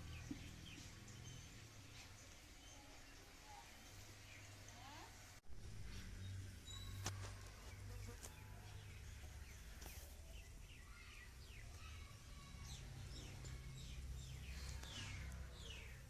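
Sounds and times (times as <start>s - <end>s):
faint bird chirps: 5.9s - 8.8s.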